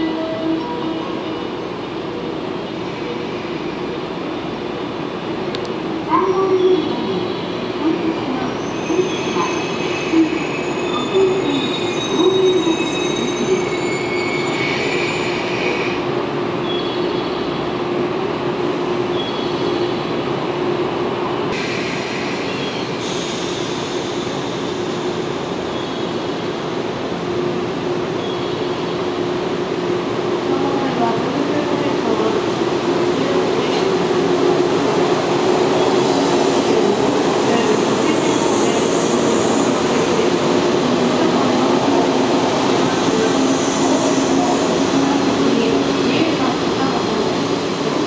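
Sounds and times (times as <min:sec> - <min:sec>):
train running hum: 0:00.0 - 0:48.0
train brake and wheel squeals: 0:08.5 - 0:16.0, 0:21.6 - 0:26.3.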